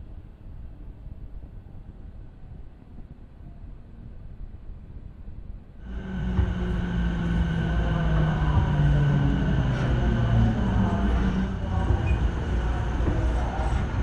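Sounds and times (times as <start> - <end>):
electric train running noise: 5.8 - 14.0
train motor whine: 5.8 - 14.0.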